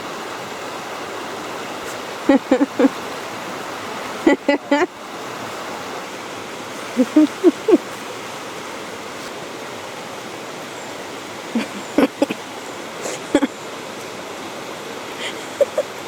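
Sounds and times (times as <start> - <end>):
river and waterfalls rushing: 0.0 - 16.0.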